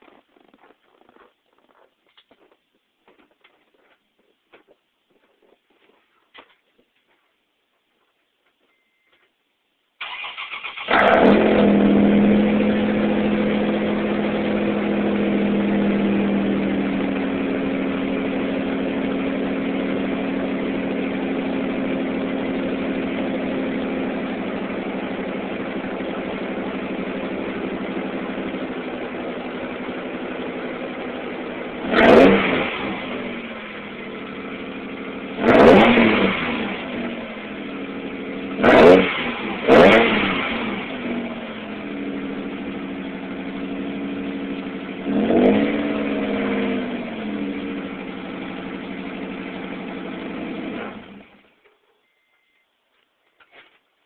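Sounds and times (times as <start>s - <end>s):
truck engine starting and idling: 10.0s - 51.6s
engine throttle blips: 10.0s - 52.6s.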